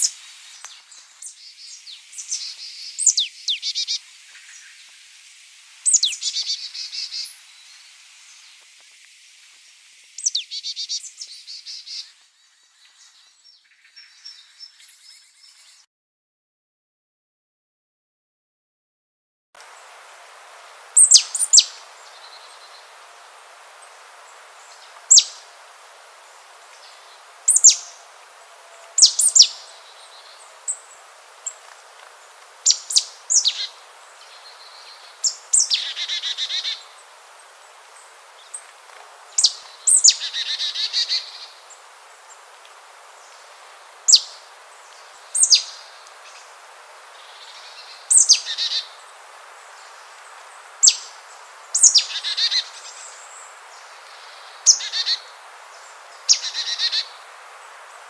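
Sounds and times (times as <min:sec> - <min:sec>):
background hiss: 0:00.0 - 0:15.9, 0:19.6 - 0:58.0
buzzy rattling bird calls: 0:21.0 - 0:22.9, 0:24.6 - 0:25.5, 0:26.8 - 0:28.1, 0:28.7 - 0:37.1, 0:38.4 - 0:41.8
sharp descending bird calls: 0:29.0 - 0:30.3.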